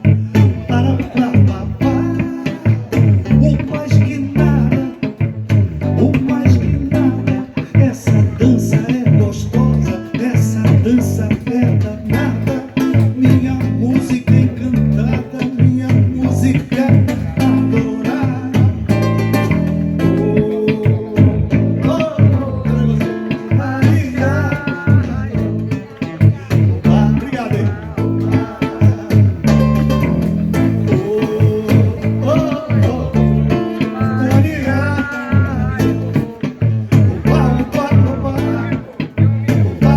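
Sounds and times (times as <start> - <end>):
bass guitar line: 0.0 - 39.9
person singing: 0.0 - 39.9
plucked guitar: 0.0 - 39.9.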